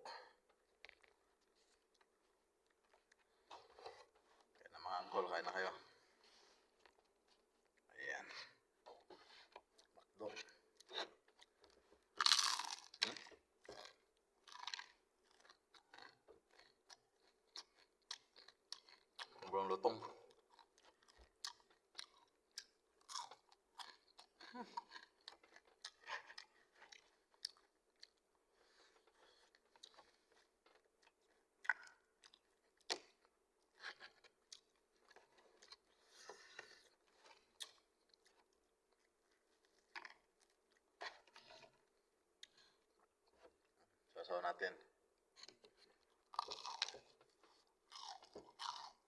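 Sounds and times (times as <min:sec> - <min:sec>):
crunchy chewing of fried chicken: 0:06.3 - 0:44.0, 0:45.4 - 0:49.0
moist chewing: 0:45.4 - 0:49.0.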